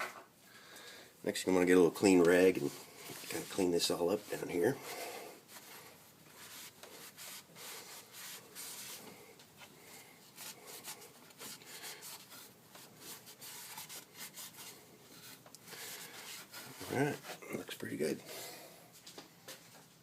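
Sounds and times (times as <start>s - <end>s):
cloth rag rubbing on metal: 1.7s - 9.7s, 10.3s - 18.2s.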